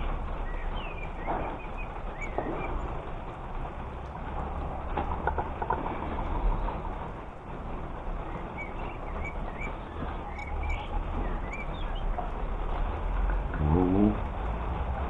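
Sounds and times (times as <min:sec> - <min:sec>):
low rumble: 0:00.0 - 0:15.0
small bird chirping: 0:00.4 - 0:03.1, 0:08.2 - 0:12.4.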